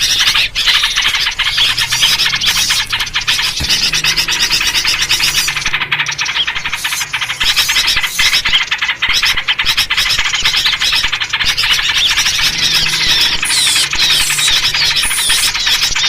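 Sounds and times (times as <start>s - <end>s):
falling whistled slurs: 0.0s - 9.3s
bulbul calls: 0.0s - 16.0s
chorus of small birds chattering: 0.0s - 16.0s.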